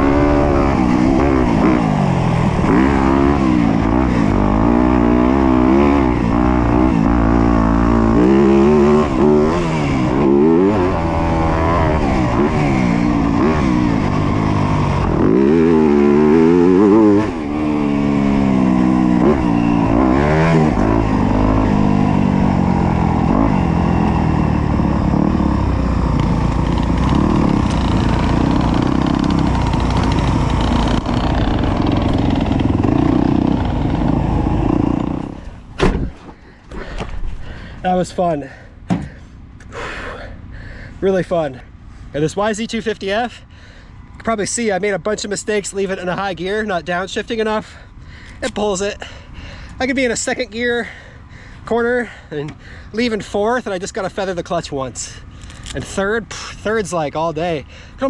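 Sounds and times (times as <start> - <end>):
motocross engine revving: 0.0 - 35.7.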